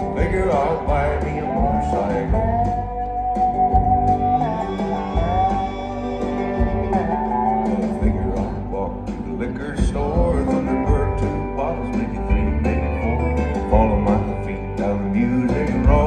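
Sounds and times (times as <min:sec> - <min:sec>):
country band playing: 0:00.0 - 0:16.0
low bass pulse: 0:00.0 - 0:16.0
sliding guitar melody: 0:00.0 - 0:16.0.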